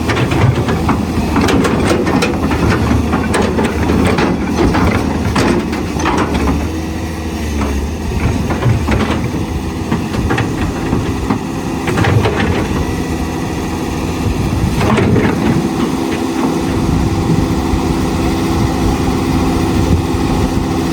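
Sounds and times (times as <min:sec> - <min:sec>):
excavator diesel engine hum: 0:00.0 - 0:20.9.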